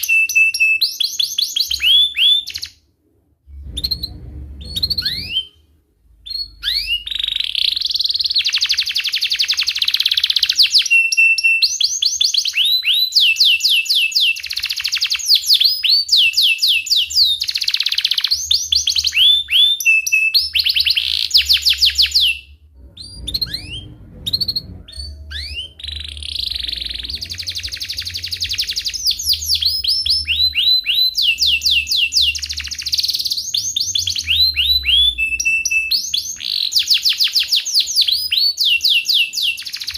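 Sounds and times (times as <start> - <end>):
canary singing in trills: 0.0 - 2.9, 3.5 - 39.9
faint low hum: 2.9 - 8.3, 20.6 - 36.5.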